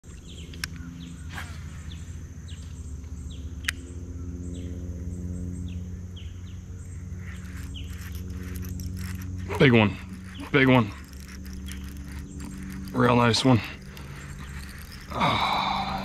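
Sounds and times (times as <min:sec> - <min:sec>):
bird chirping: 0:00.0 - 0:16.0
steady low hum: 0:00.0 - 0:16.0
sharp clicks: 0:07.3 - 0:15.2.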